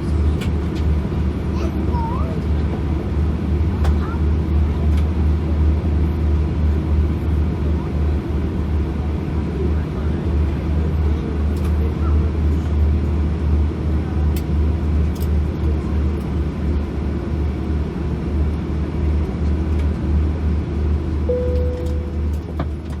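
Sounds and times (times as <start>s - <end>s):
low engine rumble: 0.0s - 23.0s
short steady tone: 21.3s - 22.5s.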